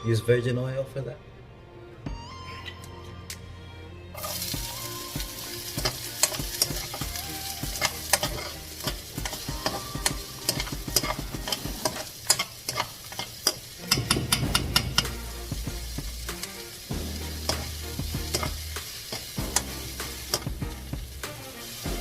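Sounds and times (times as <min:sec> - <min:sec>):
food sizzling in a frying pan: 0:04.2 - 0:22.0
spatula scraping and knocking pan: 0:05.8 - 0:16.6, 0:17.4 - 0:21.2.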